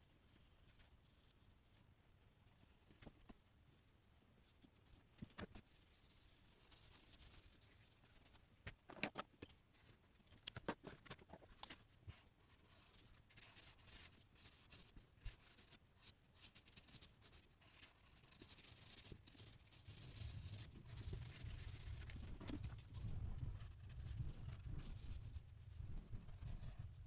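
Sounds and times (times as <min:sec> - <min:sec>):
drawing tool scratching paper: 0:12.6 - 0:25.2, 0:26.2 - 0:27.0.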